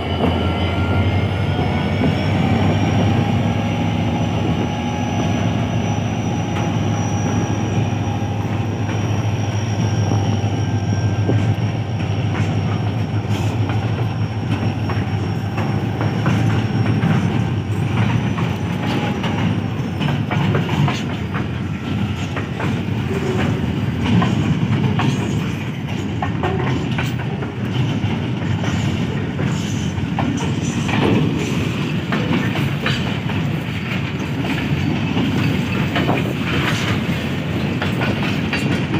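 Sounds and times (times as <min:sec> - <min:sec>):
locomotive engine drone with whine: 0:00.0 - 0:24.2.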